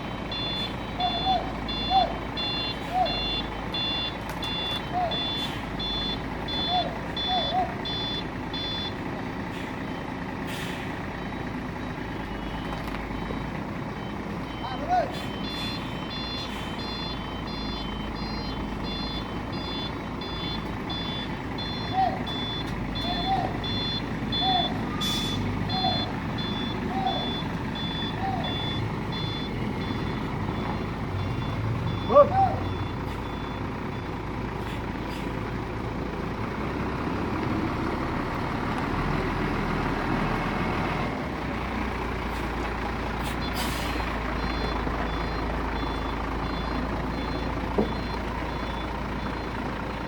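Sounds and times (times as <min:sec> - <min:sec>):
reversing beeps: 0:00.0 - 0:35.3, 0:43.2 - 0:50.0
truck diesel engine running: 0:00.0 - 0:50.0
air brake hiss: 0:10.5 - 0:11.0, 0:25.0 - 0:25.5, 0:43.2 - 0:44.1.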